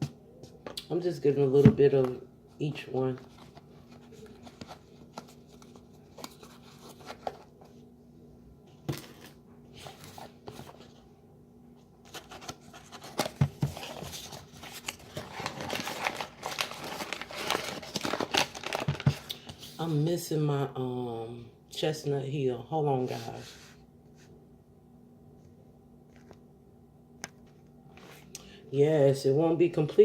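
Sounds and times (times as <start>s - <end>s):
plastic crinkling and rustling: 12.1s - 19.6s.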